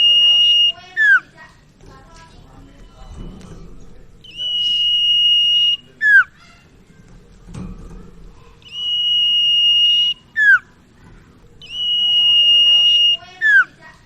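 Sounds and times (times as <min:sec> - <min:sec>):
bird whistling song: 0:00.0 - 0:01.2, 0:04.2 - 0:06.5, 0:08.6 - 0:10.8, 0:11.6 - 0:13.8.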